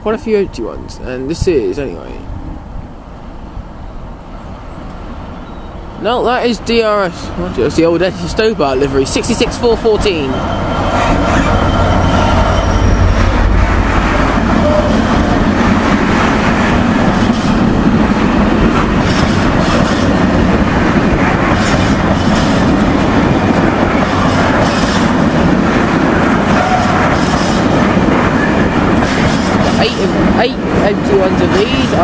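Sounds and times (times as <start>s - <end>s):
train wagons rumbling past: 0.0s - 32.0s
wheels clacking over rail joints: 7.2s - 32.0s.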